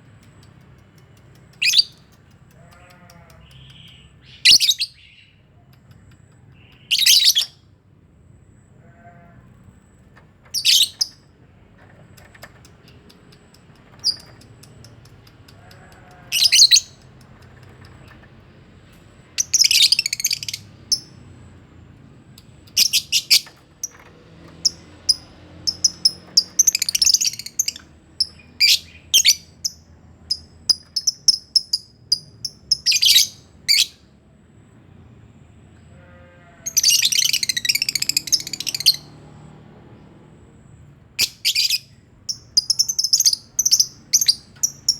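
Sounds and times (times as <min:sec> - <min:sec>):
lovebirds chirping and screeching: 0:01.5 - 0:05.4, 0:06.6 - 0:07.6, 0:10.4 - 0:18.3, 0:19.2 - 0:21.2, 0:22.5 - 0:34.0, 0:36.6 - 0:39.2, 0:41.2 - 0:44.9.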